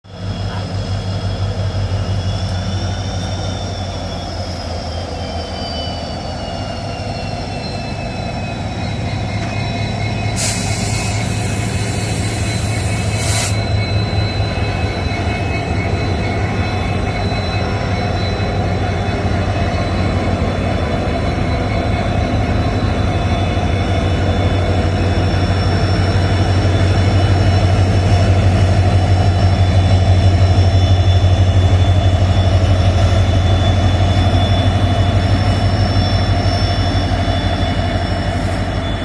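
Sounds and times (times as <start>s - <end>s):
train low rumble: 0.0s - 39.0s
high wheel squeals: 0.2s - 39.0s
train hiss: 10.2s - 14.5s, 33.8s - 39.0s.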